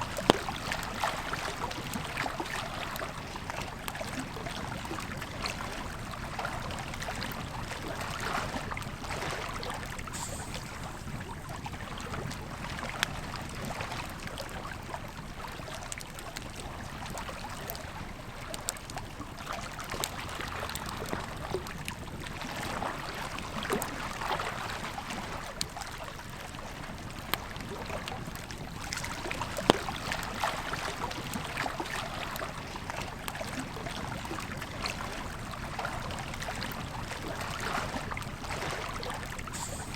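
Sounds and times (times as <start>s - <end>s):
river flowing: 9.4s - 12.9s, 36.6s - 39.9s.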